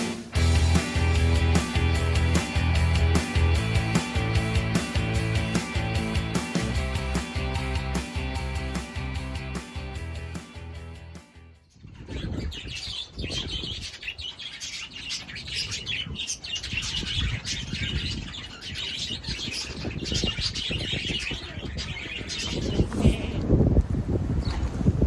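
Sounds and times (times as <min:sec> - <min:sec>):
small birds chirping: 0:11.6 - 0:23.6, 0:24.3 - 0:24.8.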